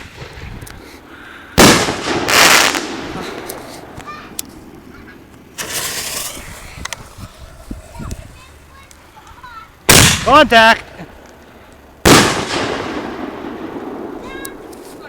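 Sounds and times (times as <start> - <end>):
fireworks hissing burst: 0.0 - 8.9
fireworks bangs: 1.6 - 8.7, 9.9 - 10.8, 12.0 - 15.0.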